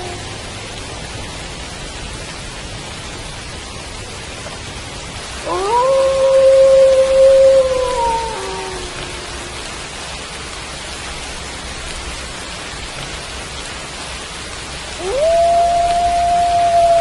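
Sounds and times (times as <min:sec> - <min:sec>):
wolf howling: 0:00.0 - 0:00.2, 0:05.4 - 0:09.8, 0:15.0 - 0:17.0
steady rain: 0:00.0 - 0:17.0.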